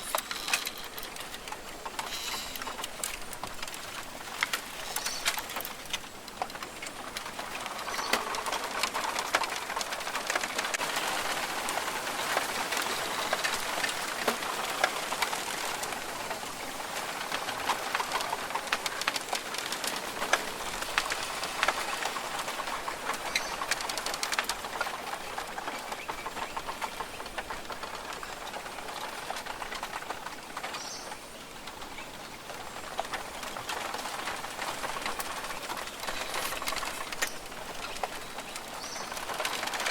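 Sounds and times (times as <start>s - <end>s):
birds calling: 4.6s - 5.7s, 32.0s - 39.9s.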